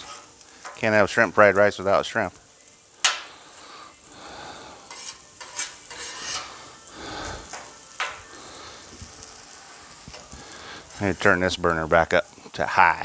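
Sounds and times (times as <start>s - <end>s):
spatula scraping steel: 0.0s - 0.9s, 4.7s - 9.3s
vegetables sizzling on a griddle: 0.0s - 13.0s.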